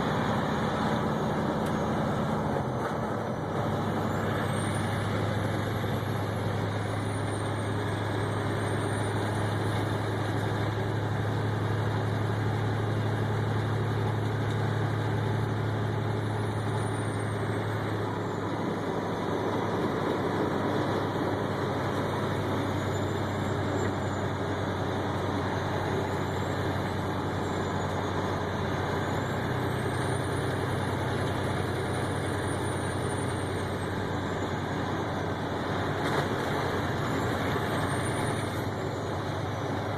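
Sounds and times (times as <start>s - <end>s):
road noise inside vehicle: 0.0s - 39.9s
vehicle engine drone: 0.0s - 39.9s.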